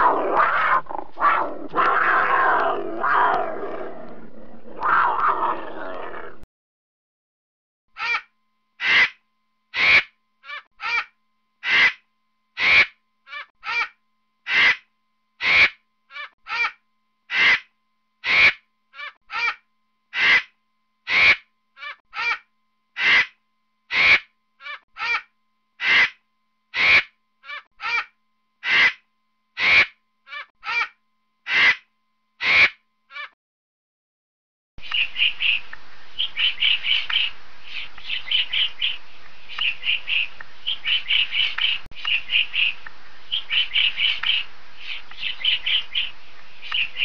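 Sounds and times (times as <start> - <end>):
harsh caw-like bird calls: 14.5 - 14.8, 15.4 - 16.7, 17.3 - 20.5, 23.0 - 29.0, 39.6 - 47.0.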